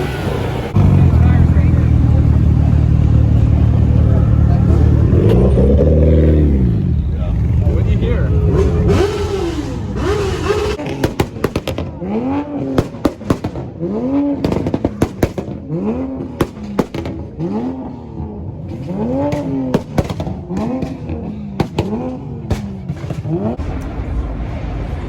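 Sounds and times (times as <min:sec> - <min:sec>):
car engine revving: 0:00.0 - 0:25.0
exhaust pops and crackles: 0:10.8 - 0:17.9, 0:18.7 - 0:24.2.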